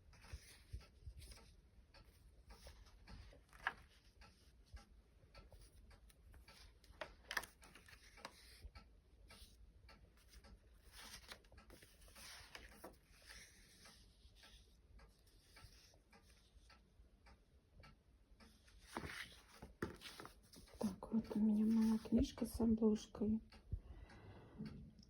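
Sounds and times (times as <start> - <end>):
book pages turning: 0.2 - 1.5, 2.1 - 4.6, 5.5 - 8.7, 10.2 - 16.4, 18.5 - 22.2.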